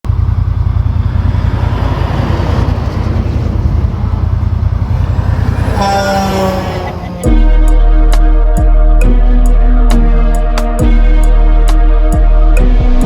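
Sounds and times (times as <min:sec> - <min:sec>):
diesel truck engine rumbling: 0:00.0 - 0:13.0
music: 0:07.2 - 0:13.0.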